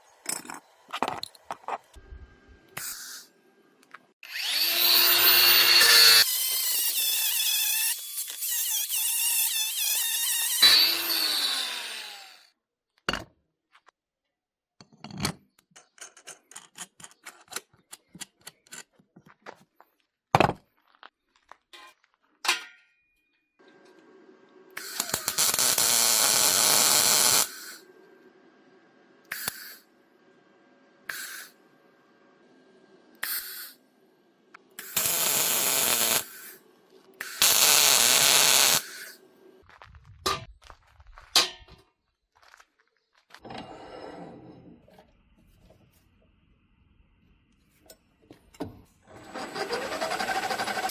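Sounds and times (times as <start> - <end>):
power drill whining: 4.2 - 12.5, 24.8 - 27.9, 34.8 - 39.2, 49.1 - 50.9
loud hissing bursts: 37.2 - 39.2.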